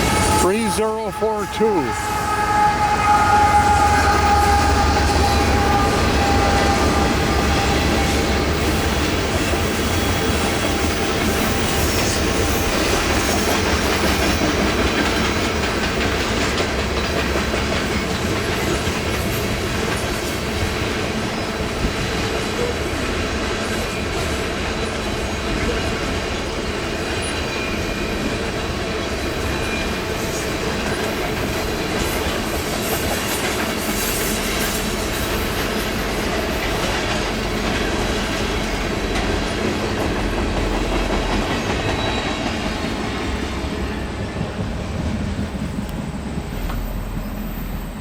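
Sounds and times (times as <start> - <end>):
locomotive engine drone: 0.0 - 11.1
train wheels clicking over rail joints: 4.1 - 48.0.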